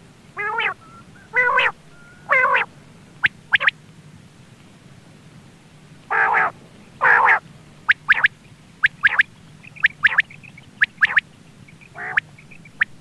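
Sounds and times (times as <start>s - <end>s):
quail call: 0.4s - 3.8s, 6.1s - 13.0s.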